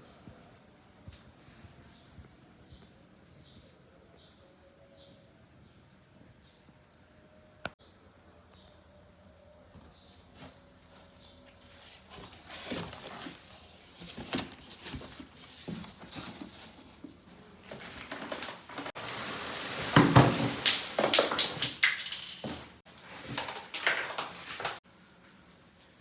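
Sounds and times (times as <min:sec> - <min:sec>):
objects knocking and clicking: 0:20.0 - 0:24.8
sharp ringing clinks: 0:20.7 - 0:22.8.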